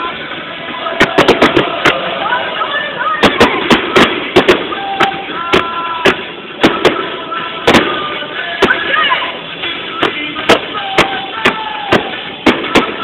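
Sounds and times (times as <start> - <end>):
fireworks bangs: 0.0 - 13.0
fireworks whistling: 0.0 - 13.0.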